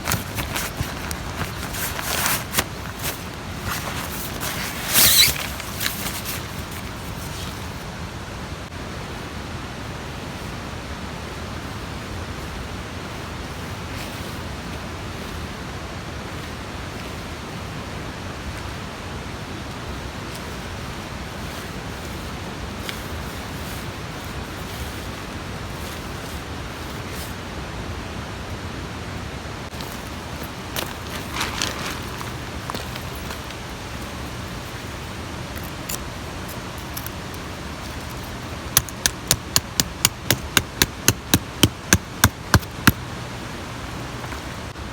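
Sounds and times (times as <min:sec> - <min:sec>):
loud rustle: 0:00.0 - 0:07.8, 0:29.7 - 0:44.8.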